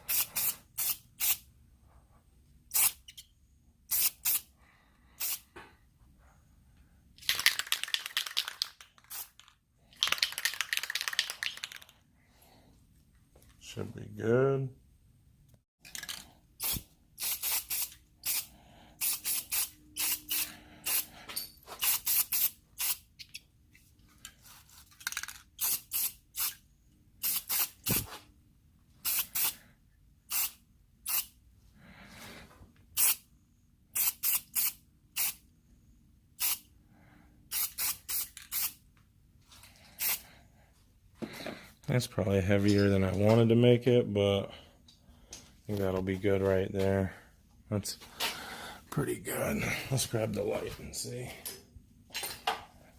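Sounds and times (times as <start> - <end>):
spray paint can hissing: 0.1 - 1.4, 2.7 - 3.1, 3.9 - 4.5, 5.2 - 5.4, 7.3 - 9.5, 16.6 - 21.1, 21.8 - 23.0, 25.6 - 26.6, 27.2 - 28.1, 29.0 - 29.6, 30.3 - 31.3, 33.0 - 33.2, 34.0 - 35.4, 36.4 - 36.6, 37.5 - 38.8.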